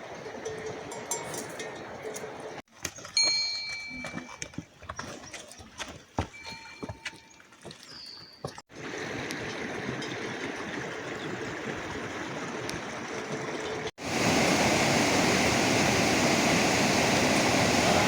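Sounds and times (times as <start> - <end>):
heavy rain: 14.0 - 18.0.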